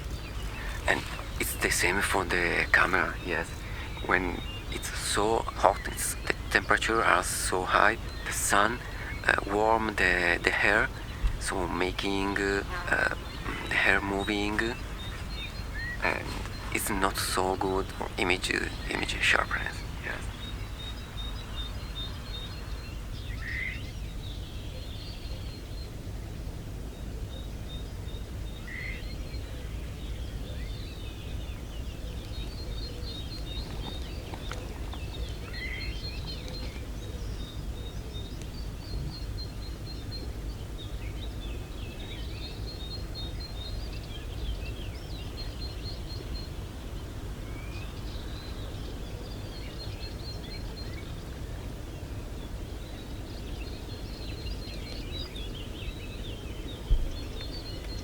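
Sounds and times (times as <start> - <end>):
high bird trills: 0.0 - 23.9
steady low rumble: 0.0 - 24.7
birds calling: 0.0 - 58.0.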